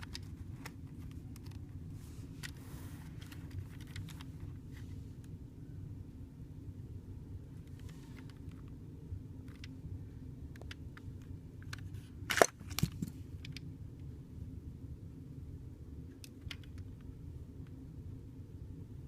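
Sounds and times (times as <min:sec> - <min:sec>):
plastic clicks: 0:09.4 - 0:09.8, 0:16.1 - 0:17.1.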